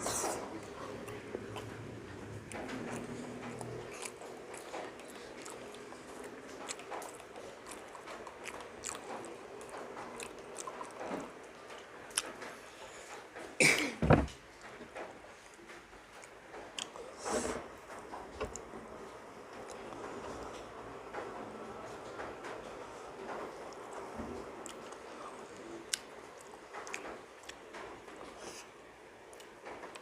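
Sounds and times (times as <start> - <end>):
close chewing and mouth sounds: 0.0 - 13.6, 14.6 - 30.0.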